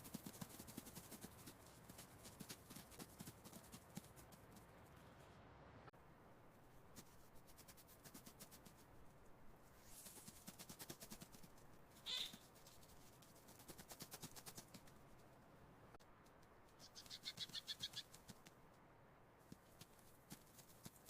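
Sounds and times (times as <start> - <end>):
mouse squeak: 12.1 - 12.4, 16.8 - 18.1.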